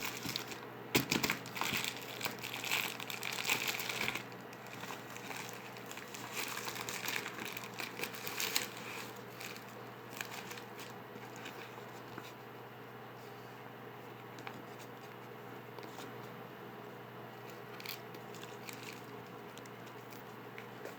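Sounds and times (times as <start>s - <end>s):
crinkling and crackling: 0.0s - 12.6s, 17.4s - 20.9s.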